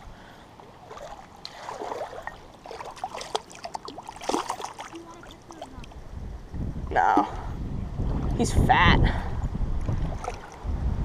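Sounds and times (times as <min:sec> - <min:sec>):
water splashing and trickling: 0:00.5 - 0:06.1, 0:08.0 - 0:10.8.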